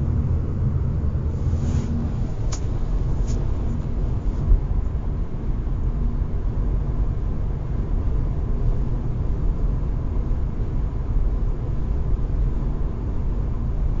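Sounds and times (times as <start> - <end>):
road and tyre rumble: 0.0 - 14.0.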